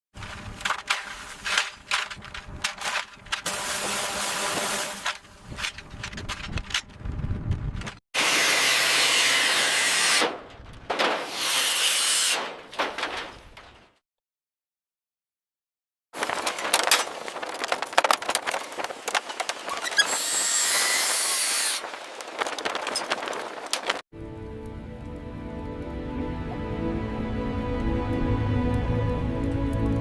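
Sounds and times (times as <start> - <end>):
power tool noise: 3.4 - 5.2, 8.2 - 10.3, 19.9 - 21.8
knocks and clanks: 10.3 - 11.4, 12.5 - 13.9.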